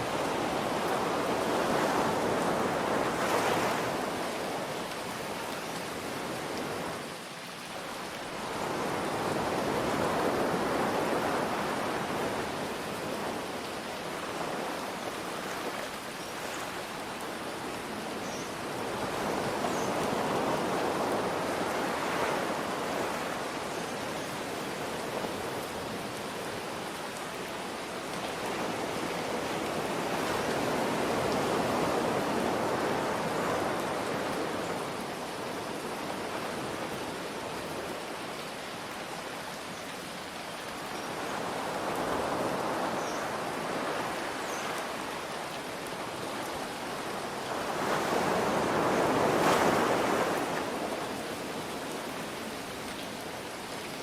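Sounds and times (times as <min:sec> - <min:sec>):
ocean waves washing in: 0:40.7 - 0:54.0.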